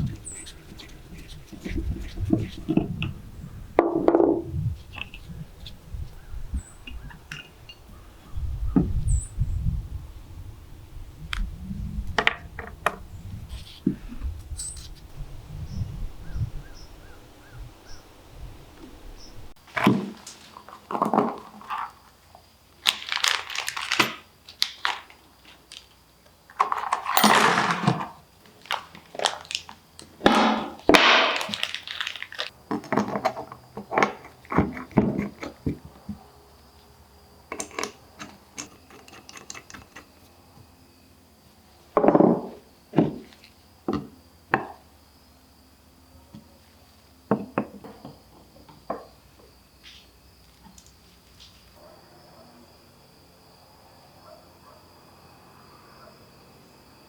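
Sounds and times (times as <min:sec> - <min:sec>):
hand tools clicking and scraping: 0:00.0 - 0:03.2, 0:06.9 - 0:08.0, 0:26.5 - 0:36.2, 0:37.5 - 0:40.4.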